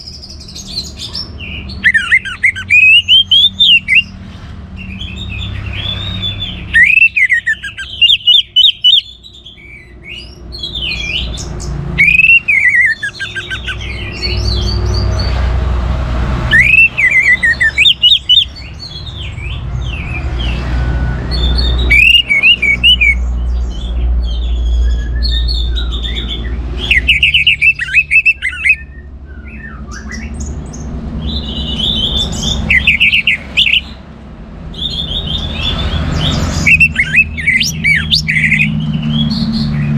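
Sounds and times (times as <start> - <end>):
thrush singing: 0.0 - 9.3, 10.6 - 23.4, 25.4 - 29.0, 30.2 - 34.0, 34.8 - 39.9.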